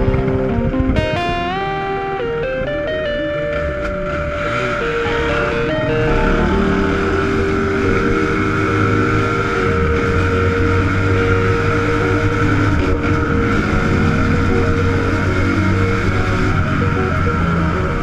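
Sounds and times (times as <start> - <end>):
dirt bike engine running: 0.0 - 18.0.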